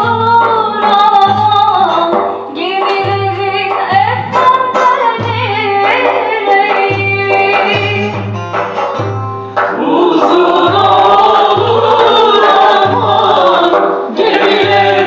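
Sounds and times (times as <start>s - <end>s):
folk song with instruments: 0.0s - 15.0s
low beat: 0.0s - 15.0s
choir singing: 9.7s - 15.0s.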